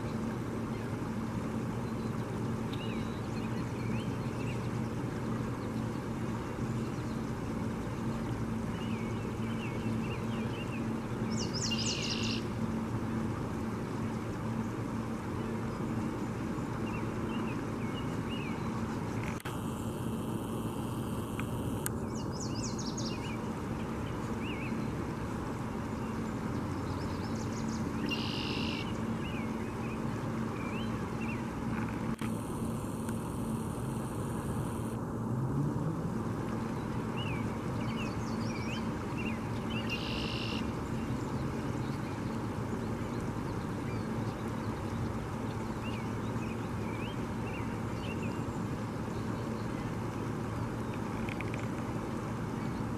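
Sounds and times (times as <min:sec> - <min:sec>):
small birds chirping: 0:00.0 - 0:12.7, 0:13.8 - 0:19.5, 0:20.2 - 0:31.5, 0:36.5 - 0:51.8
low outdoor rumble: 0:00.0 - 0:52.9.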